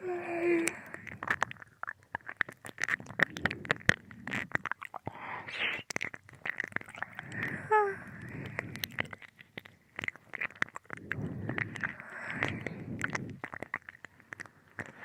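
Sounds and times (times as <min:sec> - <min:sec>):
wet mouth sounds: 0:00.0 - 0:15.0
breathy exhale: 0:07.2 - 0:08.8, 0:11.2 - 0:13.4.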